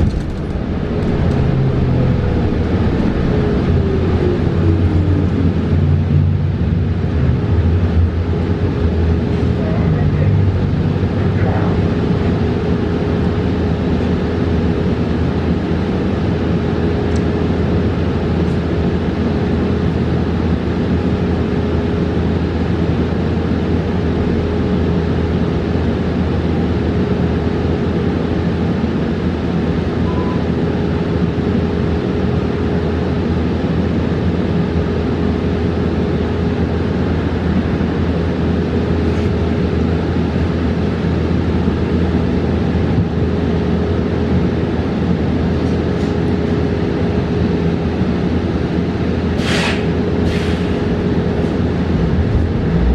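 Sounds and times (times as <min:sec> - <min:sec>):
bus interior rumble and hum: 0:00.0 - 0:52.9.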